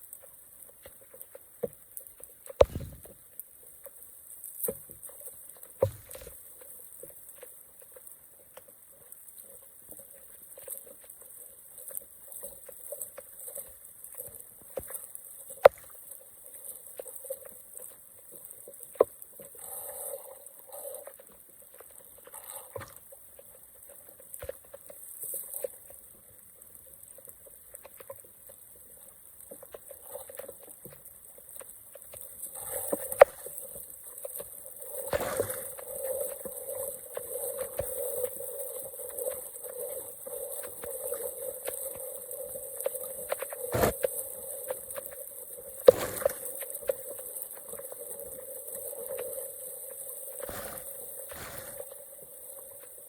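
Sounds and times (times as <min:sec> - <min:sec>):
sharp knocks: 0:02.6 - 0:03.1.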